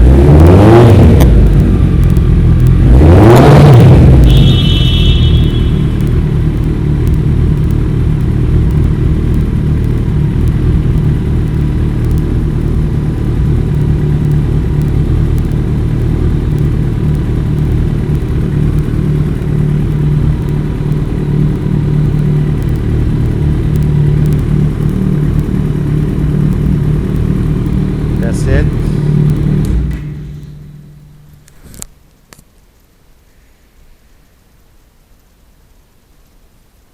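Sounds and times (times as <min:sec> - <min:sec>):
motorcycle engine idling: 0:04.3 - 0:31.5.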